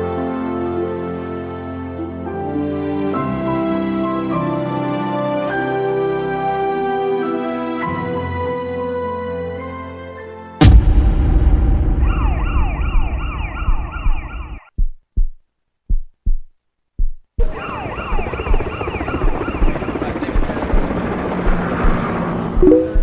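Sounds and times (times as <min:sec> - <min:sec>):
loud rumbling din: 0:10.6 - 0:14.6
siren wailing: 0:11.9 - 0:14.6, 0:17.4 - 0:23.0.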